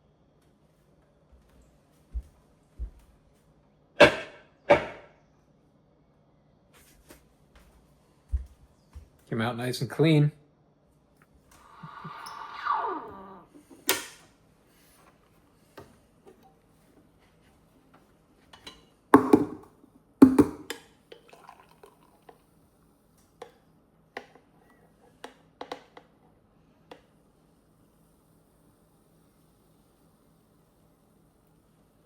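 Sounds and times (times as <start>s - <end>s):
kitchenware knocking: 4.0s - 5.1s, 19.2s - 20.7s.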